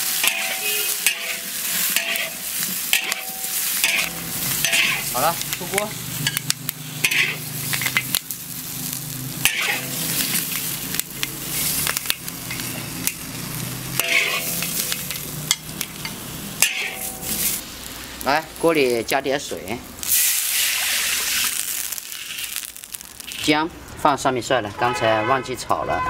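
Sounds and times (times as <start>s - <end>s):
spatula scraping a wok: 0.0s - 8.2s, 9.4s - 18.2s
chilies sizzling in hot oil: 0.0s - 24.2s.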